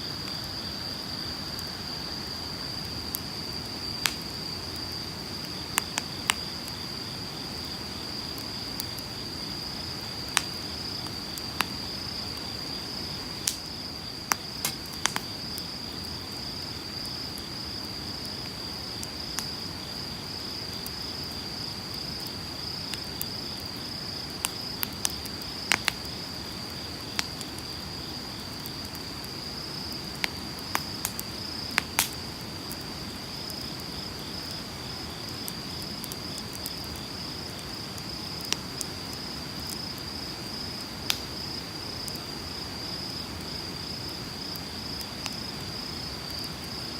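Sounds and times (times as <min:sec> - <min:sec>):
insect trill: 0:00.0 - 0:46.9
campfire crackling and popping: 0:02.4 - 0:46.9.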